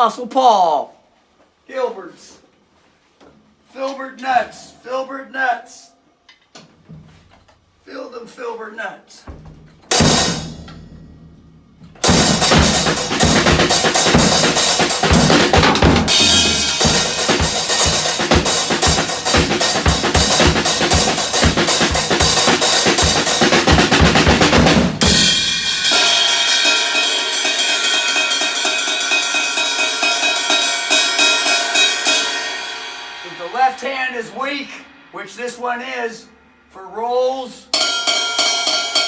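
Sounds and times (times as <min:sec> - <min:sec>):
acoustic drum kit played hard: 0:09.5 - 0:35.6, 0:37.7 - 0:39.0
cymbals ringing: 0:12.0 - 0:23.8, 0:25.0 - 0:37.1, 0:37.7 - 0:39.0.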